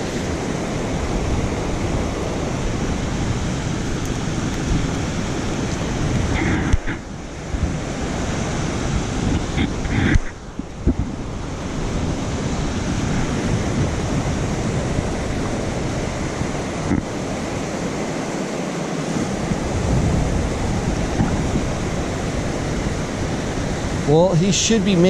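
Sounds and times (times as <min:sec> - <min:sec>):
running water roaring: 0:00.0 - 0:25.0
wind buffeting microphone: 0:00.0 - 0:25.0.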